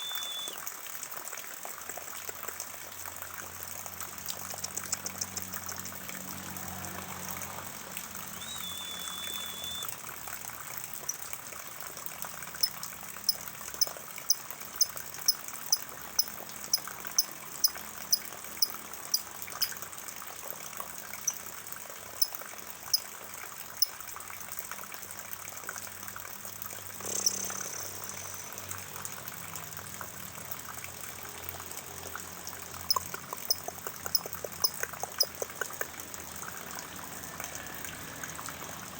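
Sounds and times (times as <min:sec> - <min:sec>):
short high chirps: 0:00.0 - 0:00.6, 0:08.3 - 0:09.9
rainwater pouring and trickling: 0:00.0 - 0:38.9.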